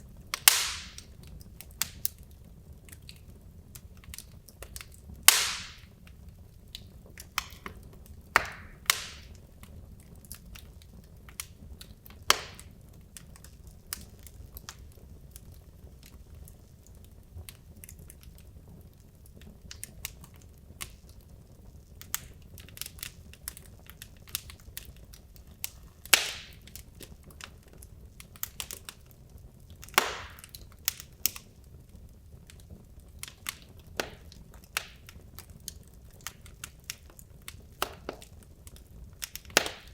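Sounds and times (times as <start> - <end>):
fire crackling: 0.0 - 39.9
fire rumbling: 0.0 - 39.9
wood popping sharply: 0.4 - 1.0, 5.3 - 5.9, 8.4 - 9.3, 26.1 - 26.7, 29.8 - 30.6, 39.5 - 39.9.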